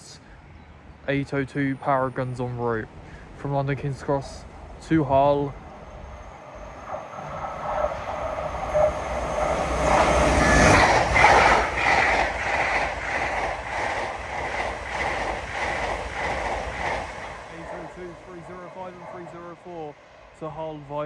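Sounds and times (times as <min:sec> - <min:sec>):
train rushing past: 0:02.2 - 0:21.0
wheels clacking over rail joints: 0:04.6 - 0:19.6.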